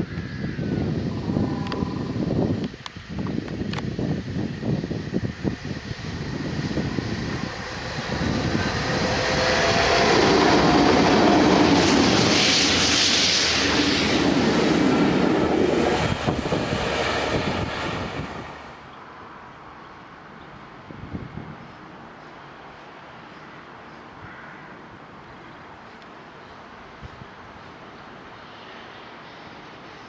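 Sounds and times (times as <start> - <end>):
diesel locomotive engines: 0.0 - 24.2
train wheels on rails: 1.4 - 18.8.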